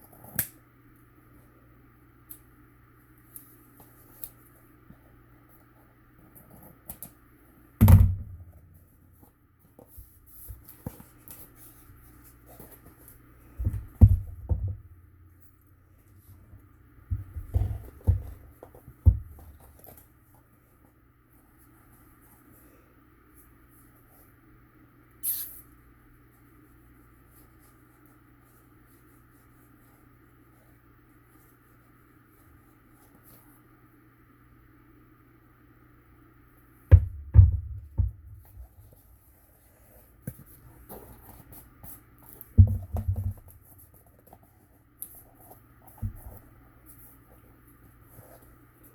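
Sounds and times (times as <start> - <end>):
steady faint hum: 0.0 - 48.9
thump on tabletop: 7.8 - 8.5, 13.6 - 14.8, 36.9 - 38.5, 42.6 - 43.5.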